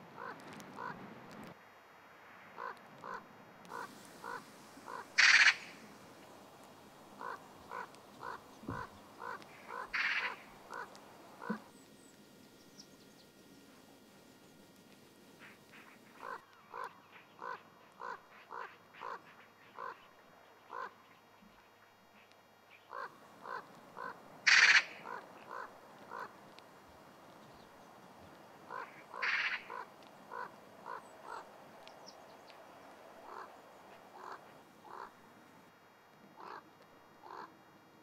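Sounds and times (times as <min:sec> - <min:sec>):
harsh bird calls: 0:02.6 - 0:05.9, 0:07.0 - 0:13.4, 0:15.4 - 0:26.4, 0:28.6 - 0:35.2
short bird calls: 0:02.6 - 0:06.0, 0:07.0 - 0:13.4, 0:15.4 - 0:26.4, 0:28.7 - 0:35.2.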